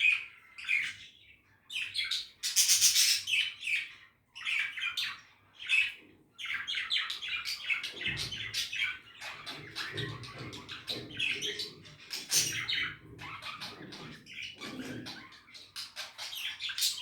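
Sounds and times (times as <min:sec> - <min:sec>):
budgerigars chirping: 0:01.7 - 0:17.0.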